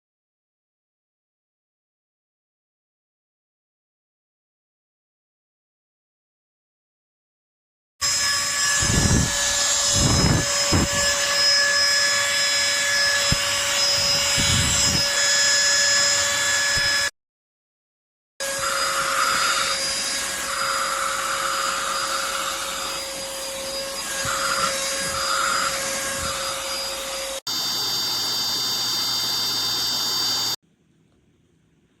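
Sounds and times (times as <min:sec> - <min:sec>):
handheld vacuum motor whine: 0:08.0 - 0:17.1, 0:18.4 - 0:30.6.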